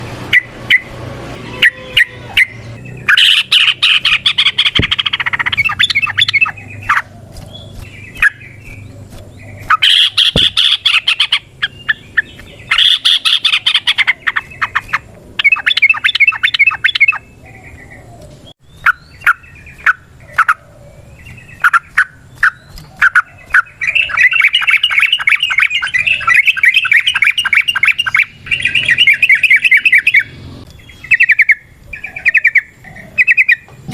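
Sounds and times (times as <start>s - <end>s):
sharp bird call notes: 0.3s - 7.0s, 9.6s - 18.0s
bird chattering song: 0.3s - 33.9s.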